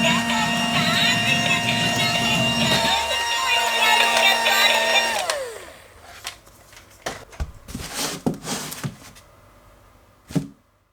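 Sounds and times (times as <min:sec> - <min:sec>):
toy robot electronic tones and motor: 0:00.0 - 0:05.6.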